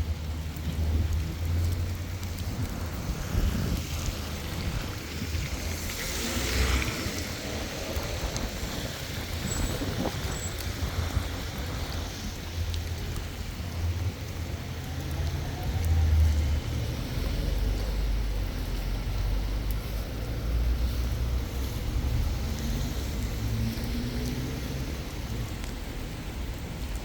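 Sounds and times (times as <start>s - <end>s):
rain: 0.0s - 27.0s
traffic on wet road: 0.0s - 27.0s
tyres hissing on wet road: 0.0s - 27.0s.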